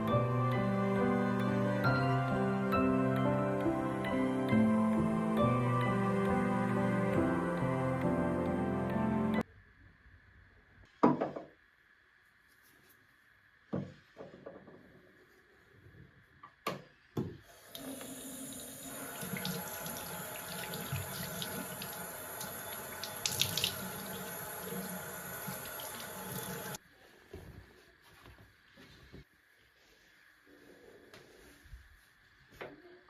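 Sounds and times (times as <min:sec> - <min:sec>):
tap water running into sink: 0:17.5 - 0:26.8.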